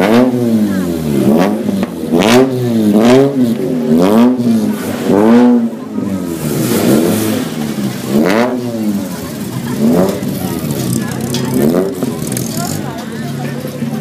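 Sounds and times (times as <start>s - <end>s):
car engine revving in blips: 0.0s - 14.0s.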